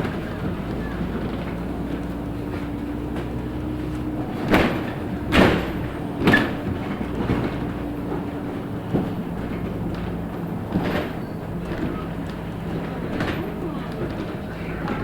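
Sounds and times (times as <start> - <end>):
bus engine drone: 0.0 - 15.0
loud clattering knocks: 0.0 - 15.0.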